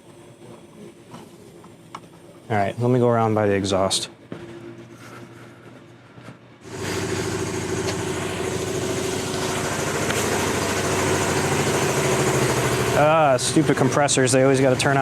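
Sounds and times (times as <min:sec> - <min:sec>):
air compressor pulsing: 0:06.6 - 0:15.0.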